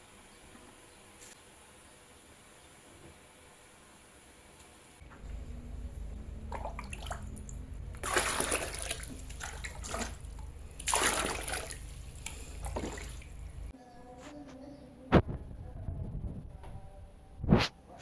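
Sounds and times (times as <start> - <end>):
low hum: 5.0 - 14.0
water splashing and pouring: 6.1 - 13.7.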